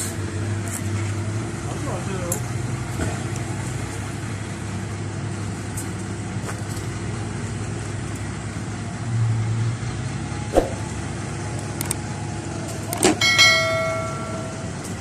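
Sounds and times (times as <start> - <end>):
motor engine running: 10.0 - 15.0.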